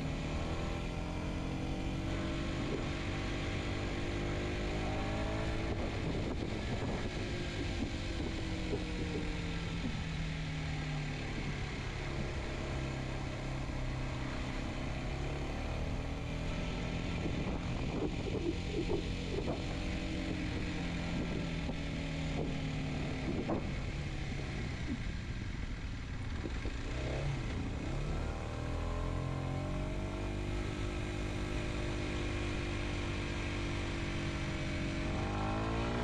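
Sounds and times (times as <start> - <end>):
motorcycle engine revving: 0.0 - 36.0
wind noise: 4.8 - 10.4, 16.7 - 25.2.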